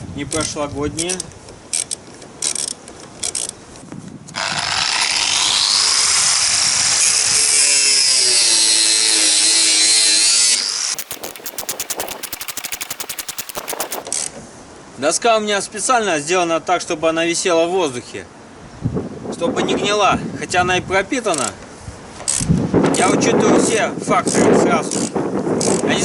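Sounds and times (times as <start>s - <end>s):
angle grinder cutting steel: 4.5s - 9.8s
fast sharp clicks: 11.0s - 14.0s.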